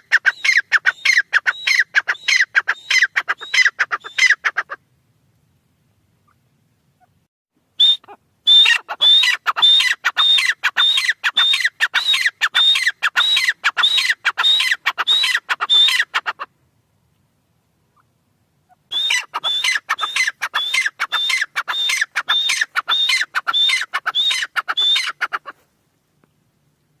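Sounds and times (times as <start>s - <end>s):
partridge calling: 0.0s - 4.8s, 8.0s - 16.5s, 17.9s - 25.7s.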